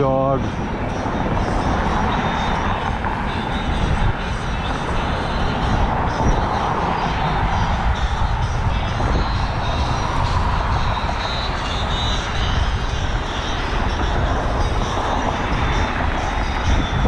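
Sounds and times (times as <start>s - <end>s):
wind rumbling over microphone: 0.0s - 17.0s.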